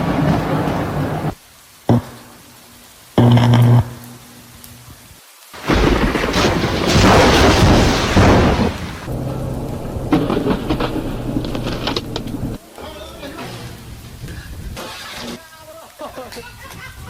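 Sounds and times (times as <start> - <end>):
thunder crashing: 0.0 - 1.4, 5.6 - 12.6
heavy rain: 0.0 - 17.0.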